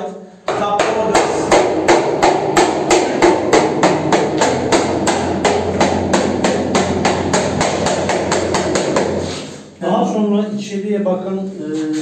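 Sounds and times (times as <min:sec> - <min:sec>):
hammer tapping: 0:00.5 - 0:09.4.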